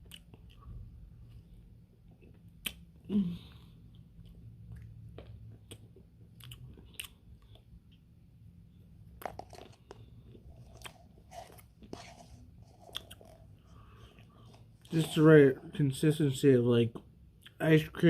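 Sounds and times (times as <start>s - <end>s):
chewing and crunching: 0.0s - 8.0s, 9.1s - 15.2s.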